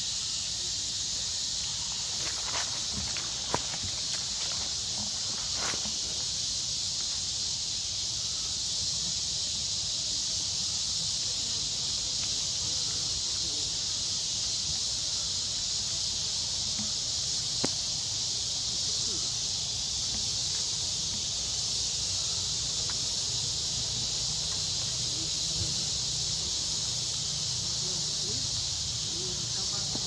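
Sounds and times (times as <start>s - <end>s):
high-pitched insect chorus: 0.0s - 30.0s.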